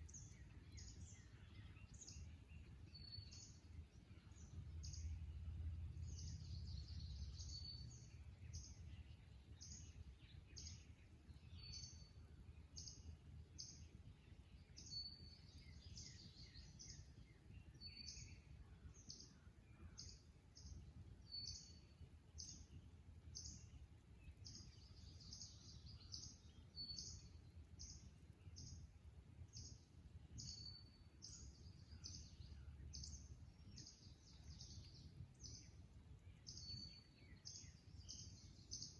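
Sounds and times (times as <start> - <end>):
low steady rumble: 0.0 - 21.2.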